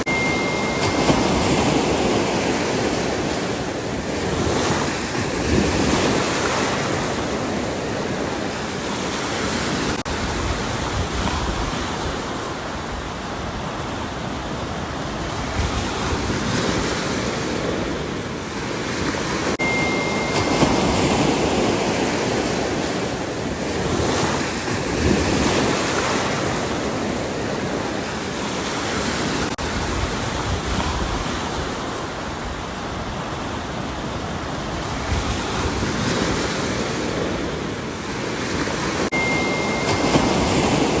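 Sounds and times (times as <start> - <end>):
faint high tone: 0.0 - 2.6, 19.6 - 21.9, 39.1 - 41.0
ocean waves breaking: 0.0 - 41.0.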